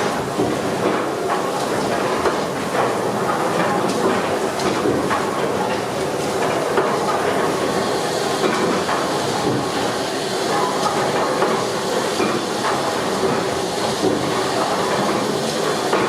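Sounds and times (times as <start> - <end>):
steam hissing: 7.3 - 16.0.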